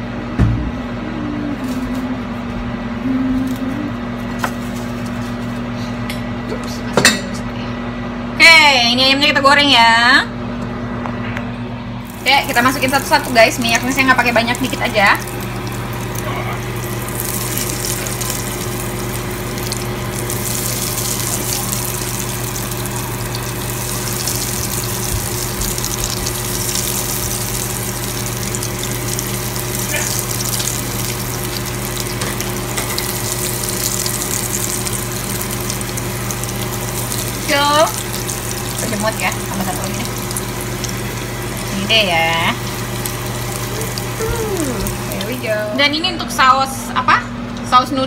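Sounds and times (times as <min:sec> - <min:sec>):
low hum: 0:00.0 - 0:04.4
chicken sizzling in oil: 0:12.0 - 0:45.7.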